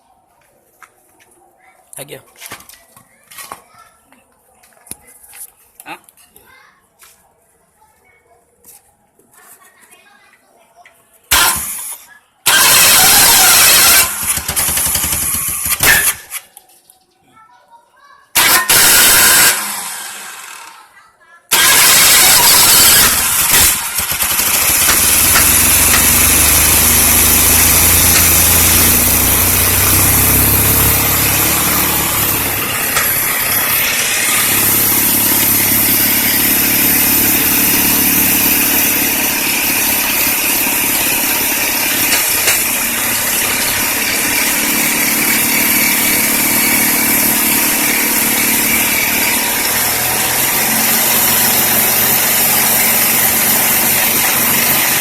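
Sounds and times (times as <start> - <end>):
car engine revving: 12.5 - 15.2, 18.4 - 20.6, 21.5 - 55.0.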